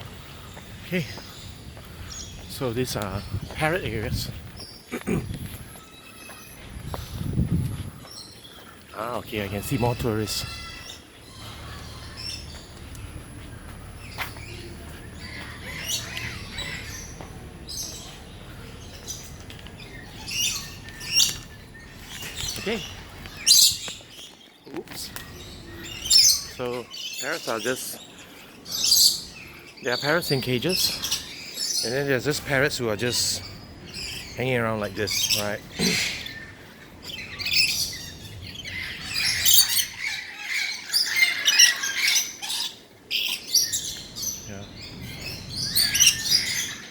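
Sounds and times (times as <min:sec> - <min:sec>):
parrots squawking: 0:09.4 - 0:13.2, 0:14.0 - 0:19.2, 0:34.0 - 0:46.9.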